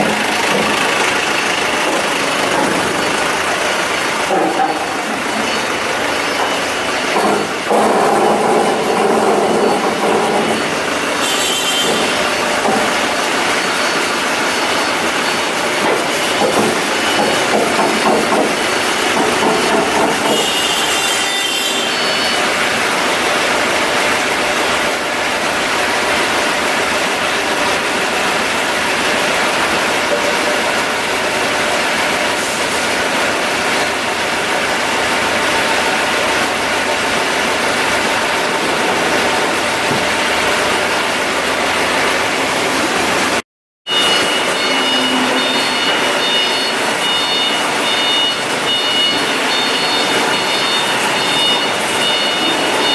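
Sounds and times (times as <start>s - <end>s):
machinery running: 0.0s - 52.9s
high squeal: 43.9s - 52.9s.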